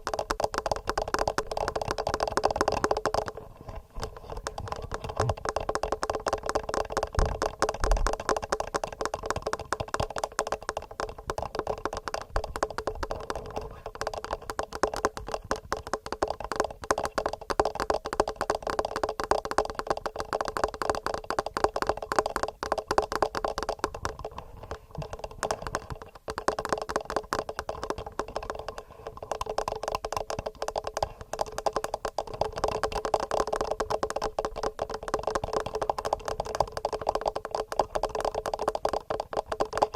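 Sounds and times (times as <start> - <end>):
fingernails tapping on microphone: 0.0 - 39.9.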